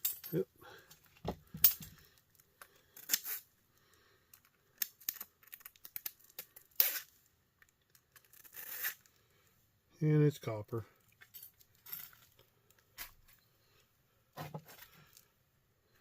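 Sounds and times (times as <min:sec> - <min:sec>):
hand tools scraping wire: 0:08.2 - 0:09.1.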